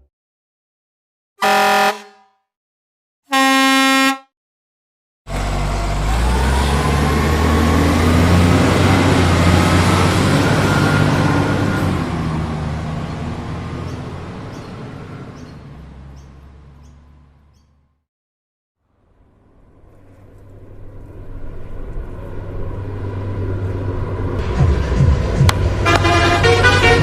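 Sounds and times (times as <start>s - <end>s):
horn honk: 1.4s - 2.5s, 3.3s - 4.3s, 25.8s - 27.0s
heavy vehicle engine running: 5.3s - 18.0s, 19.0s - 27.0s.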